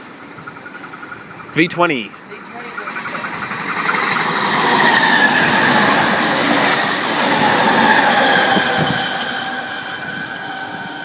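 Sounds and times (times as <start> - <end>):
train wheels rushing on rail: 0.0 - 11.0
train whine falling in pitch: 2.8 - 11.0.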